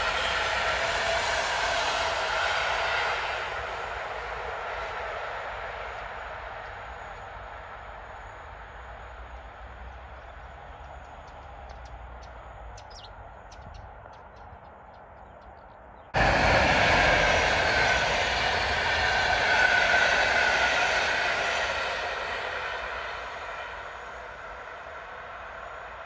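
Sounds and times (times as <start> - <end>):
train wheels whining on rails: 0.0 - 26.0
quiet trackside rumble: 5.4 - 20.1
bird chirps: 11.2 - 16.1.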